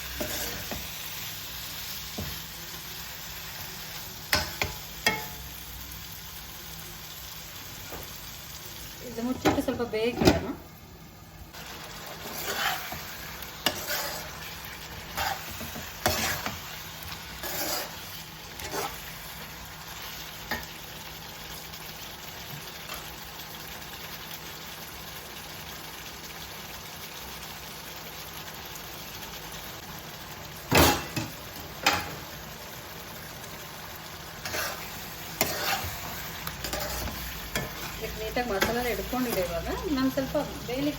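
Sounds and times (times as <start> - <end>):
meat sizzling in oil: 0.0 - 40.9
spoon stirring and scraping: 0.1 - 0.8, 12.1 - 19.2, 34.4 - 39.6.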